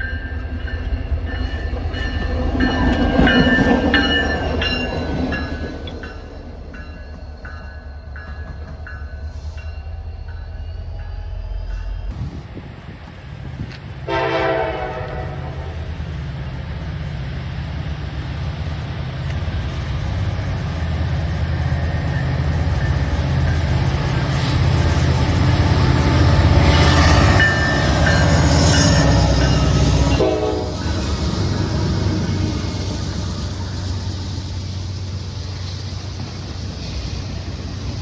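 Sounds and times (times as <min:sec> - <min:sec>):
locomotive rumble: 0:11.9 - 0:38.0
train wheels rolling: 0:12.0 - 0:38.0
train horn: 0:14.0 - 0:15.9, 0:25.1 - 0:31.2.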